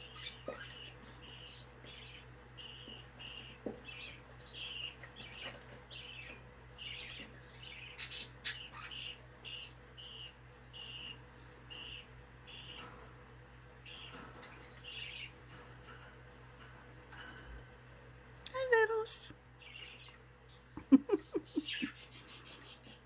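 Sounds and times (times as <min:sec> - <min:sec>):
budgerigars chirping: 0:00.0 - 0:18.3, 0:19.5 - 0:23.0.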